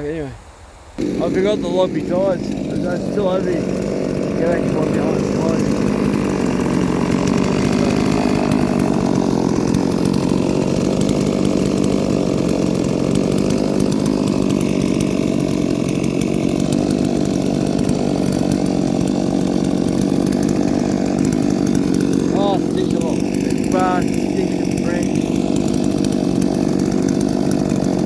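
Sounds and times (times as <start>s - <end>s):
chainsaw running high pitch: 1.0s - 28.0s.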